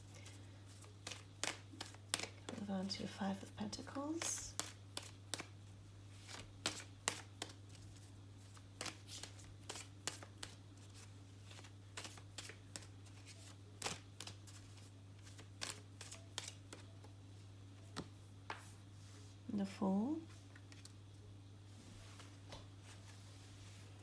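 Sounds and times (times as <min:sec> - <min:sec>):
low steady hum: 0:00.0 - 0:24.0
cards clicking and flicking: 0:00.2 - 0:02.6, 0:04.2 - 0:05.6, 0:06.2 - 0:07.8, 0:08.5 - 0:16.9.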